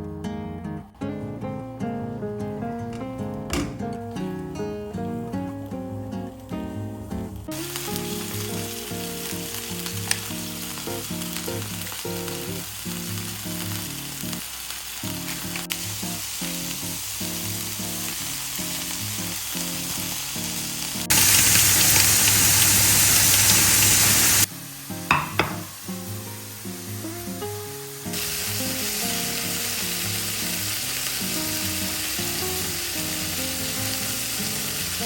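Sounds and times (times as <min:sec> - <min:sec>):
background music: 0:00.0 - 0:12.8
food sizzling in a pan: 0:04.2 - 0:35.0.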